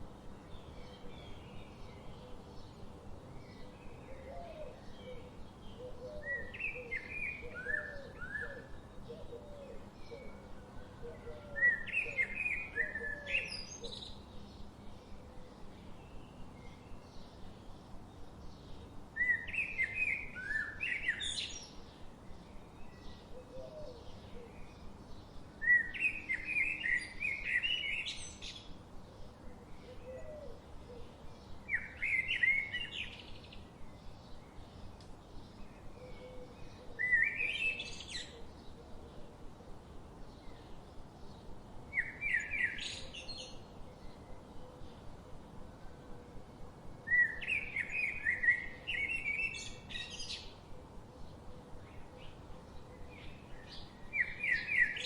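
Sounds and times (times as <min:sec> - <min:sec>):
soft background hiss: 0:00.0 - 0:55.0
songbird singing sweeping notes: 0:40.3 - 0:44.6.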